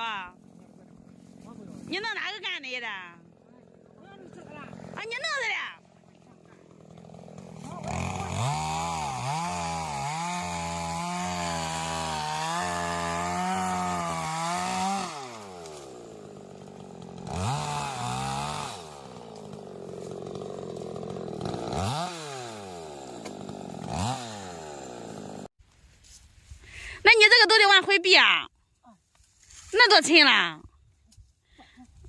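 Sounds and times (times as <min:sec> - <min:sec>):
chainsaw cutting wood: 0:00.0 - 0:25.5.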